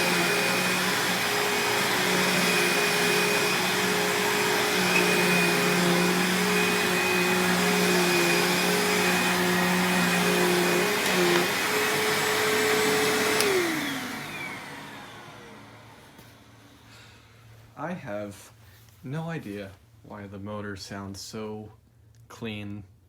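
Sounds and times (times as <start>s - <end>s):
upright vacuum running: 0.0s - 16.7s.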